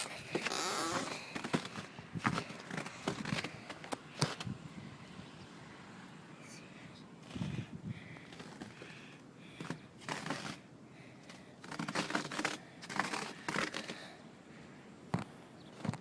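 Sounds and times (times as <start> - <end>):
rustling and crinkling: 0.0 - 4.5, 8.2 - 14.2, 15.1 - 16.0.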